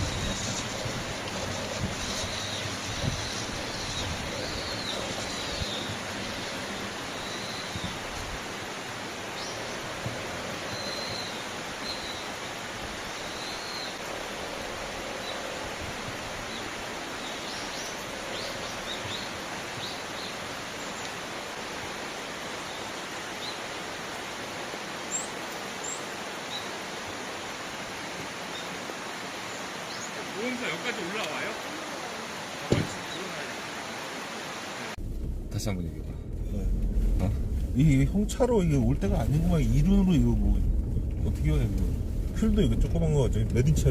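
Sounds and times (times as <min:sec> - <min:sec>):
small birds chirping: 0:00.0 - 0:14.1, 0:16.3 - 0:21.3, 0:22.5 - 0:24.2, 0:25.0 - 0:27.7, 0:28.3 - 0:33.5
steady rushing noise: 0:00.0 - 0:22.5, 0:34.9 - 0:43.9.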